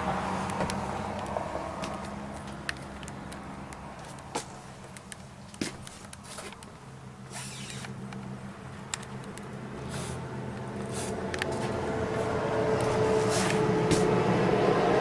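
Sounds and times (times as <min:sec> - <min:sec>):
creaks: 0:07.3 - 0:08.2.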